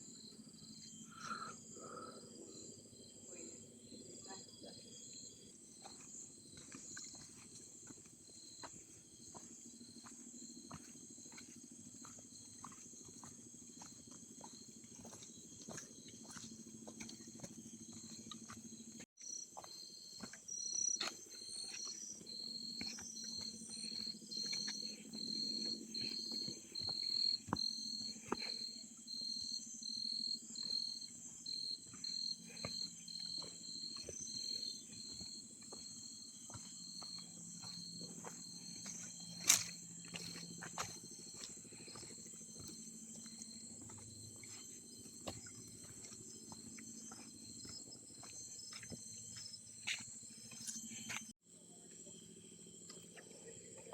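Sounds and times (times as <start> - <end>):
insects buzzing: 0.0 - 53.9
pulsing insect call: 0.0 - 53.9.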